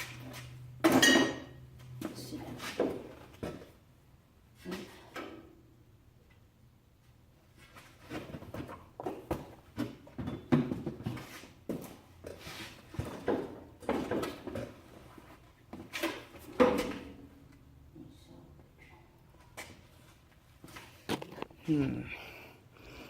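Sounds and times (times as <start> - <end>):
knocks and clatters of objects: 8.0 - 15.1.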